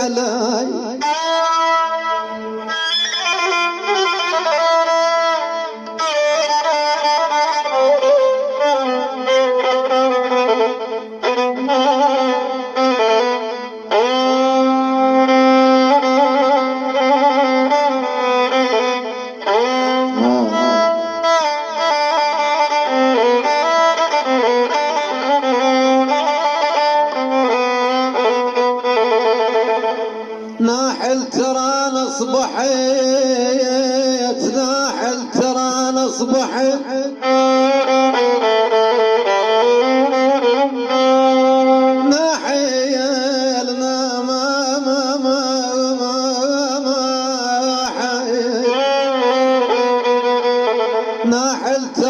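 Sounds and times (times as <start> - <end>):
violin-toned melody: 0.0 - 30.8, 37.0 - 42.2, 48.5 - 52.0
held drone note: 20.1 - 21.2.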